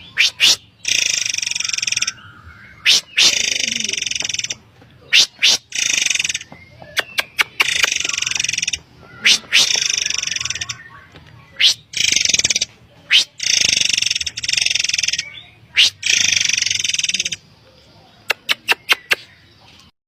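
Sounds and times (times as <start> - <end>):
sharp upswept bird whistles: 0.0 - 4.2, 5.1 - 8.6, 11.6 - 17.4.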